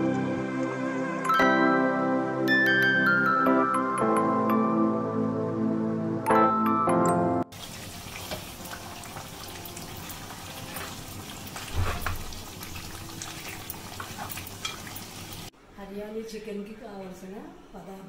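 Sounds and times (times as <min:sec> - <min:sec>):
curry sizzling in a metal pot: 0:07.5 - 0:15.5
ladle stirring and scraping: 0:09.2 - 0:15.1.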